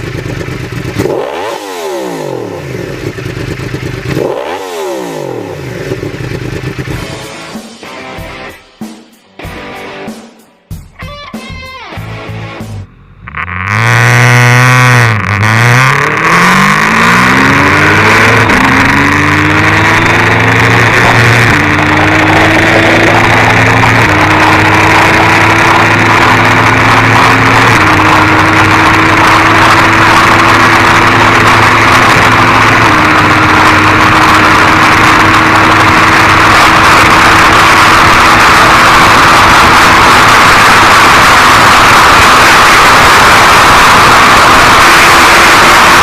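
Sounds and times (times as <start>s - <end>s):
motorcycle engine accelerating: 0.0s - 7.5s, 12.1s - 46.0s
rushing wind noise: 15.4s - 46.0s.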